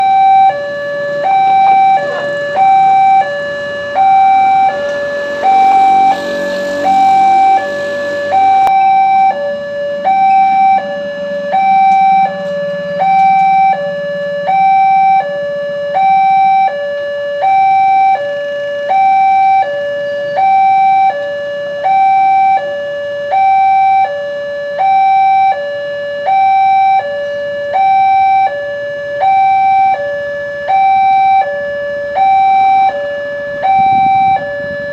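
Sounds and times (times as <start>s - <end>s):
low hum: 0.0s - 22.6s
level crossing alarm: 0.0s - 34.9s.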